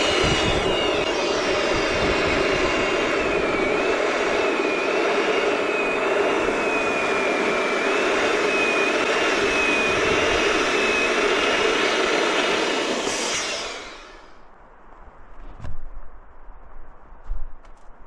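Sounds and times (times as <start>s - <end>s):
electric pump whining: 0.0s - 14.4s.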